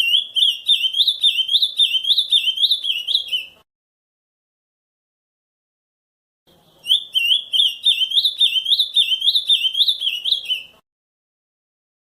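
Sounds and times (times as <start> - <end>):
bird singing quick rising notes: 0.0 - 3.6, 6.6 - 10.8.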